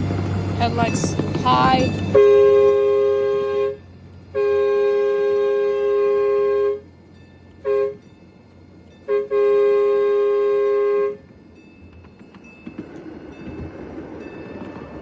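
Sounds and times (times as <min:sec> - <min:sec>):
locomotive horn blasts: 0:02.0 - 0:06.9, 0:07.6 - 0:08.1, 0:09.0 - 0:11.3.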